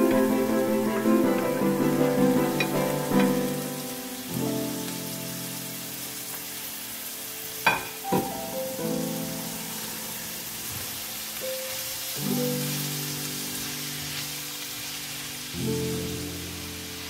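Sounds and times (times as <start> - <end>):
background music with chords: 0.0 - 5.2
food sizzling in a wok: 0.0 - 17.0.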